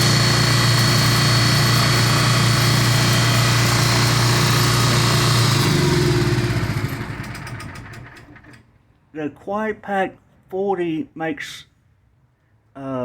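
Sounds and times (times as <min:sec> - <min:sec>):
generator running: 0:00.0 - 0:08.6.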